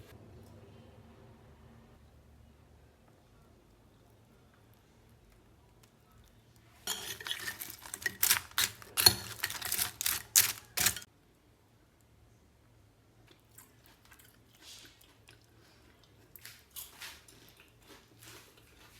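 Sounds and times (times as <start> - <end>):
chips crunching: 6.9 - 11.1.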